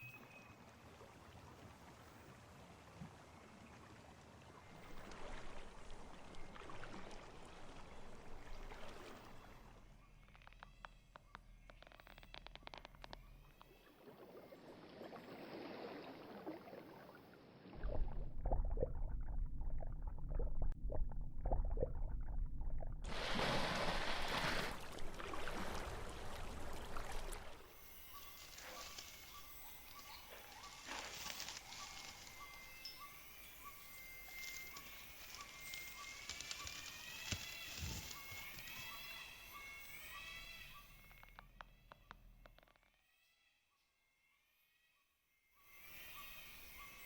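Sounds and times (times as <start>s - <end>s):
small clicks: 10.2s - 13.8s, 34.4s - 38.9s
low rumble: 17.8s - 23.5s.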